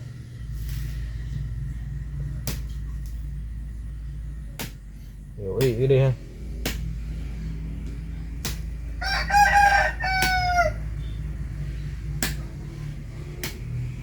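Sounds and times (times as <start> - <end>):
rooster crowing: 9.0 - 11.2.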